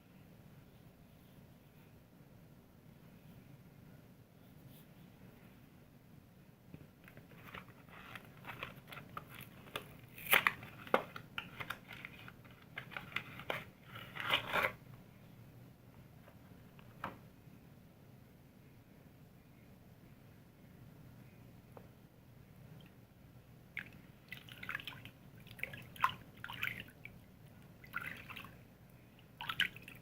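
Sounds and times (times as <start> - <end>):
crinkling handling noise: 7.0 - 14.8.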